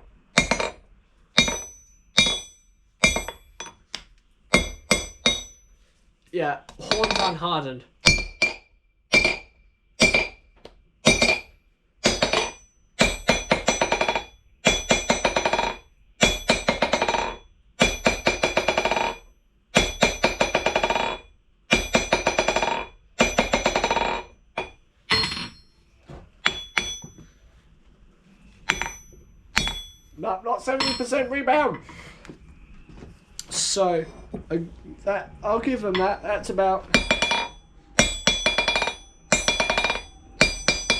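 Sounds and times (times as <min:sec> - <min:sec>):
steel object bouncing on anvil: 0:01.4 - 0:03.8, 0:04.5 - 0:05.6, 0:06.8 - 0:07.4, 0:08.0 - 0:10.4, 0:11.0 - 0:19.2, 0:19.8 - 0:25.7, 0:26.4 - 0:27.2, 0:28.6 - 0:31.7, 0:36.9 - 0:40.9.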